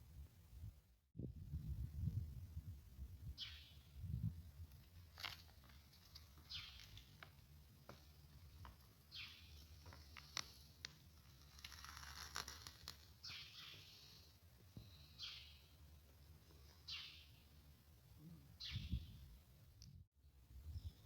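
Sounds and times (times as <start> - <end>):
faint birdsong: 3.3 - 4.0, 6.2 - 7.3, 8.1 - 10.6, 13.2 - 19.5.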